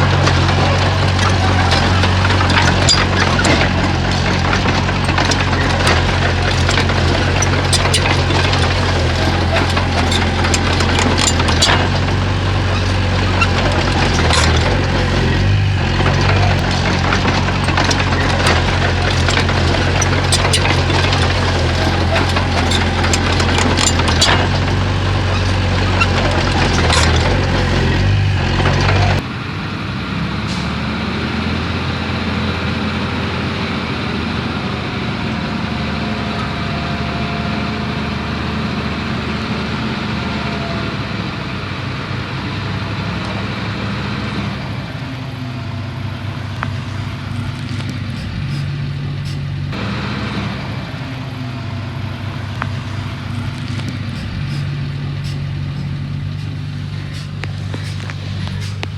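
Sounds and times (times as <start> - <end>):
metallic clanks and knocks: 0.0 - 29.2
bulldozer diesel engine running: 0.0 - 58.9.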